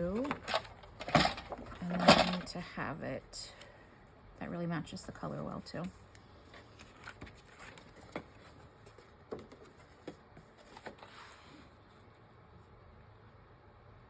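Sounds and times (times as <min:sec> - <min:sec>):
paper and fabric rustling: 0:05.8 - 0:12.2.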